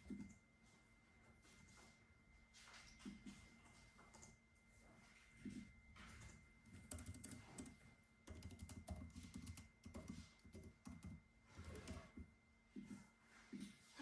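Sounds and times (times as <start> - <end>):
faint keyboard typing: 4.0 - 4.4, 6.0 - 12.3.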